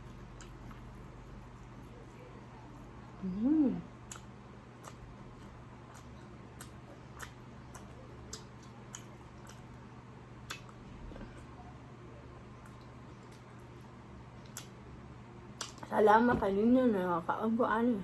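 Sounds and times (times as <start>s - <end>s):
quiet chewing: 0.0s - 14.9s, 15.6s - 15.9s
wet mouth clicks and smacks: 10.5s - 10.7s.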